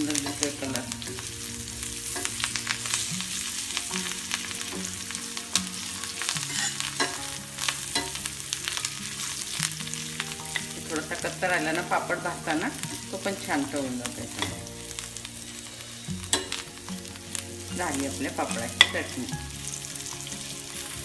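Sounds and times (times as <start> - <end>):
spatula scraping a pan: 0.0 - 11.3
food sizzling in hot oil: 0.0 - 21.0.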